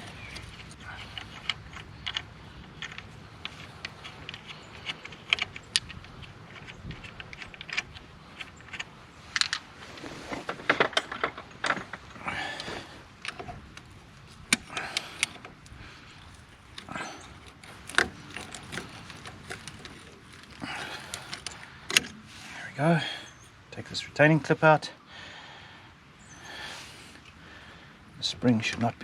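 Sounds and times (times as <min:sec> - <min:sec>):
pliers clicking and scraping metal: 0:00.0 - 0:09.6, 0:12.6 - 0:22.2.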